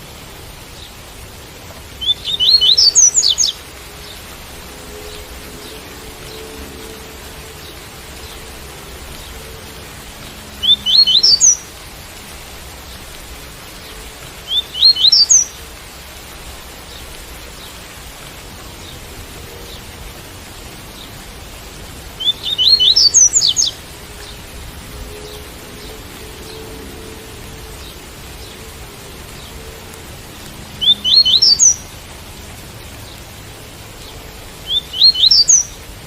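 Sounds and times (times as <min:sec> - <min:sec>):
steady rain: 0:00.0 - 0:36.0
bird whistled song: 0:02.0 - 0:03.6, 0:10.6 - 0:11.7, 0:14.5 - 0:15.6, 0:22.2 - 0:23.8, 0:30.8 - 0:31.8, 0:34.6 - 0:35.8.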